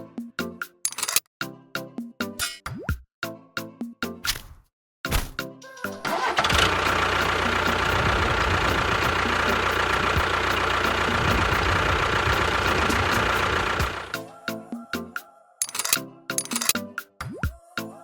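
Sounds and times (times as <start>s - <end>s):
vehicle engine running: 6.0s - 14.2s.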